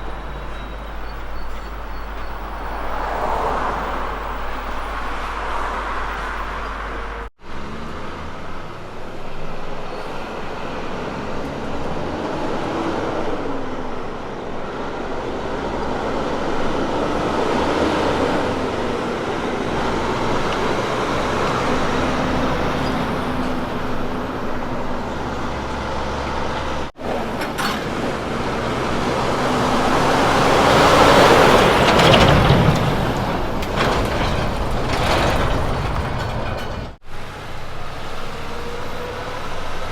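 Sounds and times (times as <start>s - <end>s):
truck diesel engines: 0.0s - 39.9s
truck passing by: 0.0s - 39.9s
tyre and road noise: 0.0s - 39.9s.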